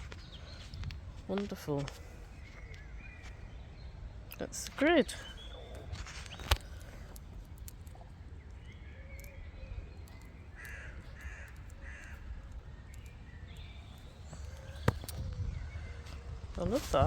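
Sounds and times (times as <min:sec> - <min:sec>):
wind rumble on microphone: 0:00.0 - 0:17.0
crows cawing: 0:10.2 - 0:12.8.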